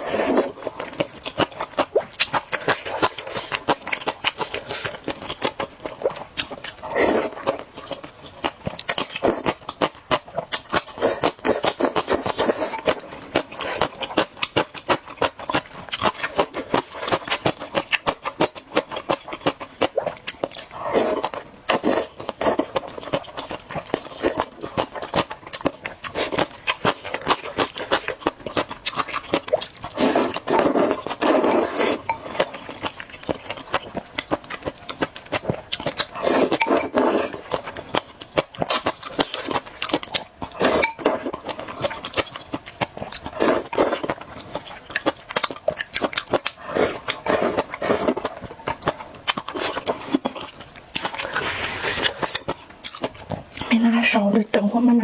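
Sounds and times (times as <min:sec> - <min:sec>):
noodle slurping: 0:00.0 - 0:05.1, 0:06.1 - 0:07.6, 0:10.6 - 0:14.1, 0:20.7 - 0:25.3, 0:25.9 - 0:32.9, 0:35.9 - 0:37.6, 0:38.6 - 0:42.2, 0:43.2 - 0:44.2, 0:45.4 - 0:50.4, 0:51.0 - 0:52.5
wet chewing clicks: 0:00.0 - 0:54.1.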